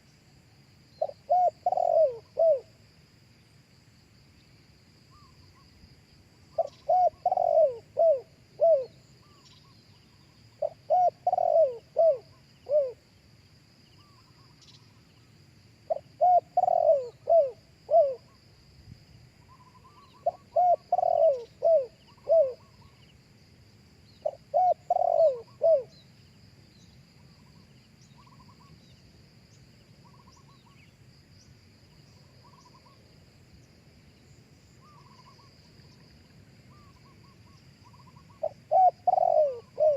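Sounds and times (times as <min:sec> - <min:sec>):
dove cooing: 0:01.0 - 0:02.7, 0:06.6 - 0:09.4, 0:10.6 - 0:13.0, 0:15.9 - 0:18.4, 0:19.5 - 0:22.9, 0:24.2 - 0:26.0, 0:36.7 - 0:39.9.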